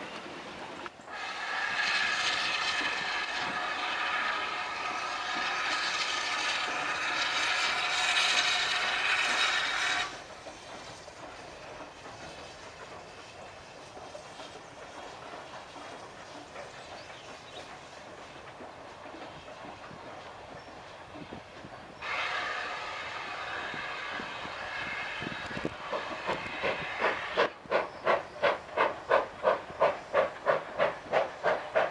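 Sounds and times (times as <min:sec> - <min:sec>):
locomotive whistle blast: 0:22.0 - 0:25.6.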